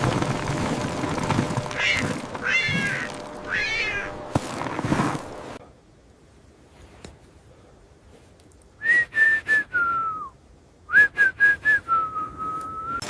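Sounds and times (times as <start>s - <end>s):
whistled tune: 10.9s - 13.0s.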